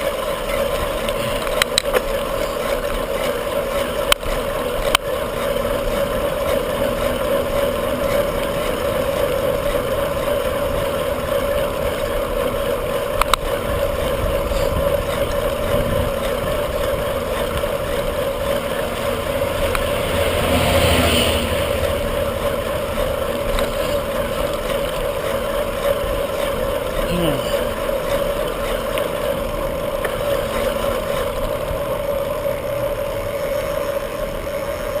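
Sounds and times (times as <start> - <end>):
wind and road noise: 0.0 - 35.0.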